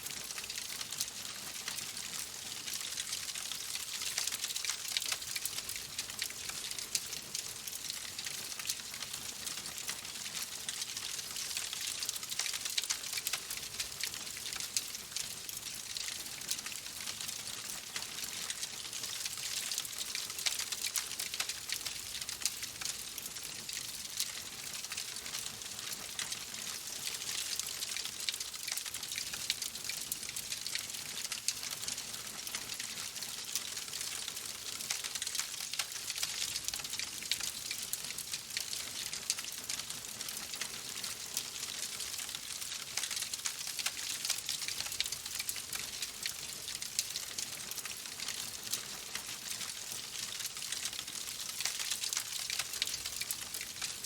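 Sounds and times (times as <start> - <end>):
wood fire crackling: 26.9 - 54.0.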